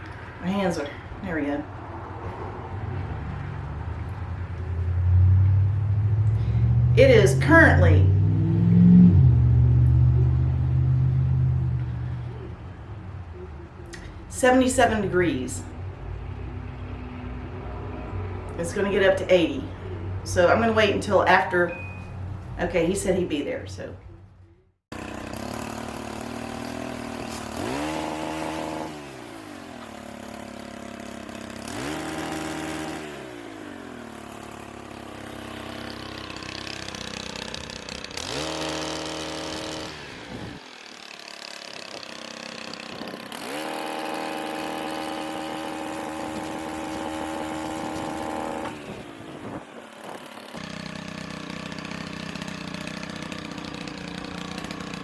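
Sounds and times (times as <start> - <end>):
chainsaw engine revving: 5.2 - 12.6, 24.9 - 55.0.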